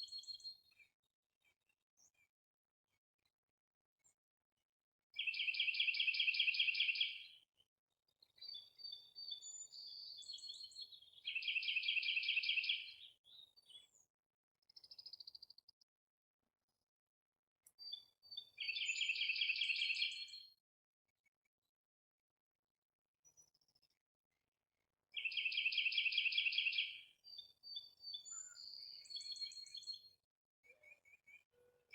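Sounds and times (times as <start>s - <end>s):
bird chirps and whistles: 27.7s - 29.8s.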